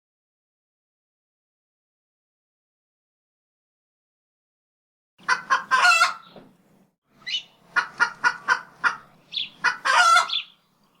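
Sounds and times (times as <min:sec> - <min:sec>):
chickens clucking: 0:05.2 - 0:06.5, 0:07.2 - 0:10.6
poultry drawn-out call: 0:05.3 - 0:06.3, 0:07.2 - 0:10.6.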